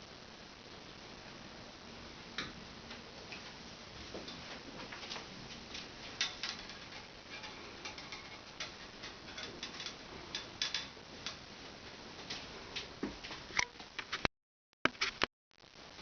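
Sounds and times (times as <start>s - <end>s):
cat claws clicking on bars: 6.2s - 11.4s.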